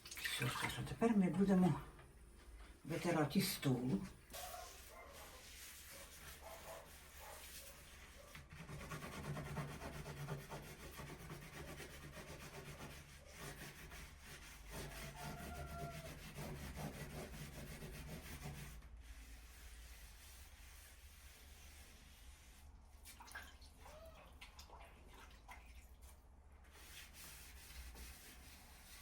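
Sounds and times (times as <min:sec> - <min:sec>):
cloth wiping a table: 0:03.0 - 0:22.9, 0:26.7 - 0:29.0.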